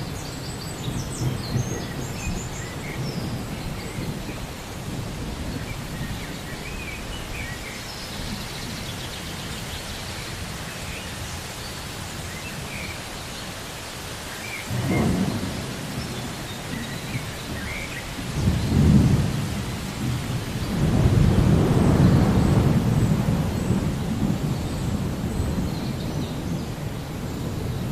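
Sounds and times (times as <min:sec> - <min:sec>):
steady rain: 0:00.0 - 0:27.9
thunder rumbling: 0:14.7 - 0:27.9.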